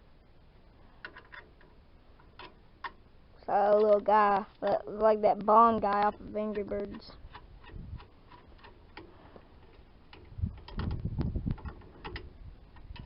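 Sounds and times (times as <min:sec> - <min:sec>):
metal bolt clicking: 0:01.0 - 0:03.0, 0:06.6 - 0:13.0
wind rumbling on microphone: 0:06.8 - 0:08.2, 0:09.1 - 0:13.0.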